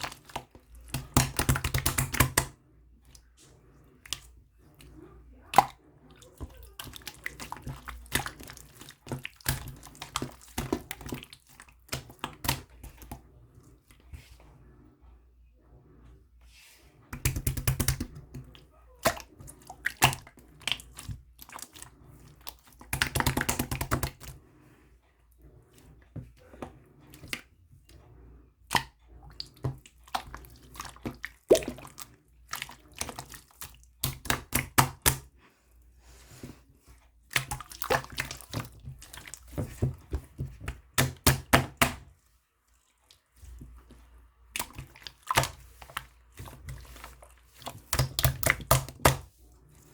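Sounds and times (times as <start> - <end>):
slime squished by hand: 44.5 - 49.4.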